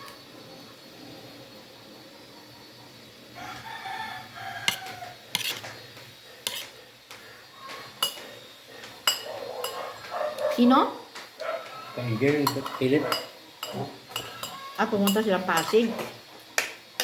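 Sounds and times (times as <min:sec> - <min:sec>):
rooster crowing: 0:03.3 - 0:05.3, 0:11.4 - 0:13.3, 0:14.1 - 0:15.0
cutlery clinking against plate: 0:04.6 - 0:05.8, 0:07.7 - 0:10.2, 0:12.3 - 0:17.0.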